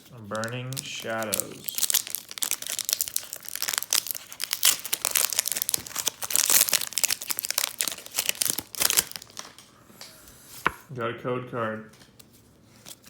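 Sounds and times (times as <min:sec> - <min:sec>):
foil wrapper crinkling and tearing: 0:00.0 - 0:09.7, 0:12.8 - 0:13.0.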